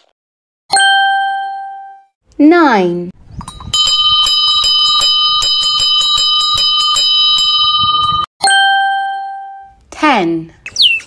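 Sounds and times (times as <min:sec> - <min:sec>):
bell ringing rapidly: 0:03.7 - 0:09.4.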